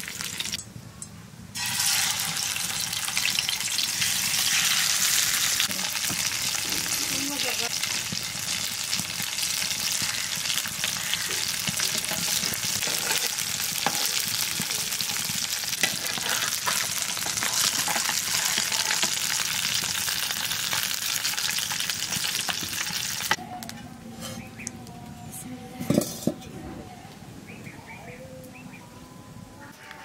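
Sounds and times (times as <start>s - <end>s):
food frying in hot oil: 0.0s - 0.6s, 1.6s - 23.4s.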